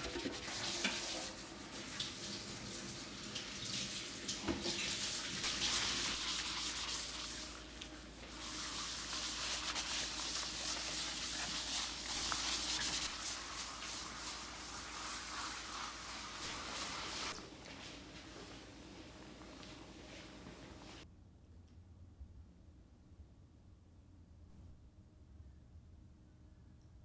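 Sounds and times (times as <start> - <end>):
brush scrubbing a surface: 0.0 - 18.8.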